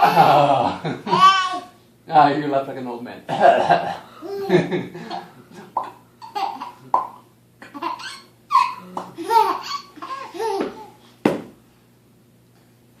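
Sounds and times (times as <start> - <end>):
small child laughing: 0.0 - 1.7, 4.2 - 5.3, 6.2 - 6.8, 7.6 - 11.0
sharp knock: 11.2 - 11.6.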